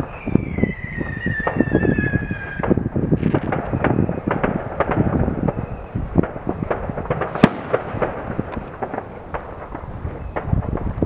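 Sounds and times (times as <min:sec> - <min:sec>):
fireworks bangs and crackles: 0:00.0 - 0:11.0
sharp loud firework crack: 0:06.7 - 0:10.8.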